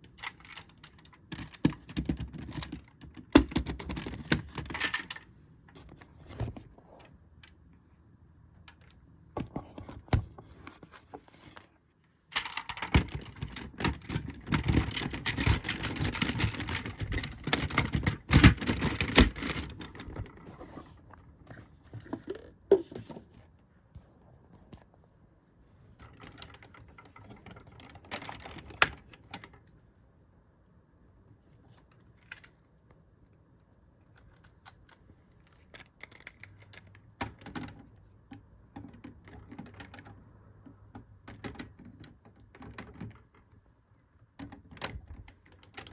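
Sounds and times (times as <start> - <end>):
plastic toy parts clicking: 0.1 - 6.1, 12.3 - 20.4, 34.0 - 38.0, 44.4 - 45.9.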